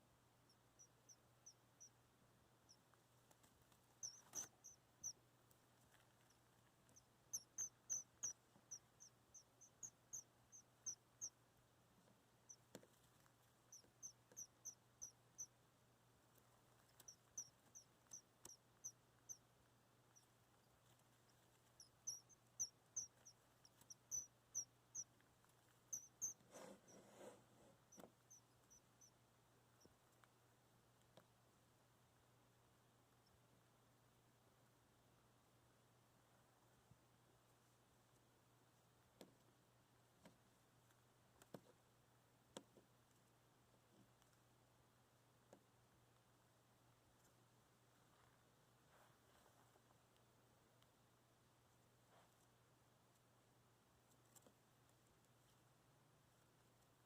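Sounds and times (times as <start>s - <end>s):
baby bird peeping: 0.0s - 31.3s, 32.2s - 33.6s.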